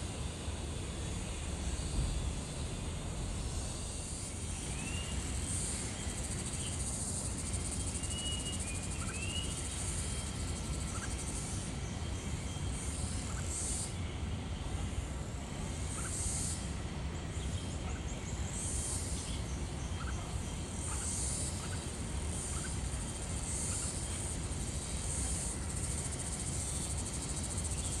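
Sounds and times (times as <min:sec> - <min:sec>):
insects droning: 0:00.0 - 0:28.0
steady low rumble: 0:00.9 - 0:06.4
faint bird chirps: 0:04.4 - 0:14.0, 0:17.4 - 0:24.4.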